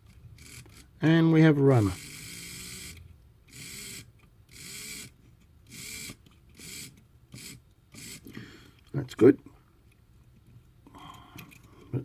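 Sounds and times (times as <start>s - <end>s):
model locomotive motor whirring: 1.6s - 8.3s.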